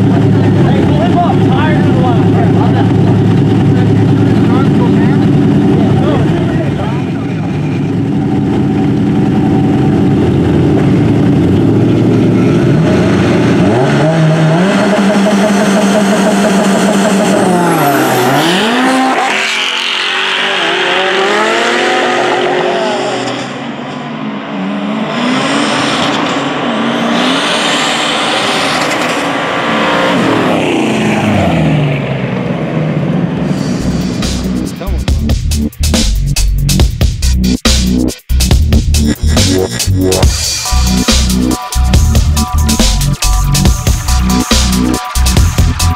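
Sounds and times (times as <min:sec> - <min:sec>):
car engines revving at full throttle: 0:00.0 - 0:36.4.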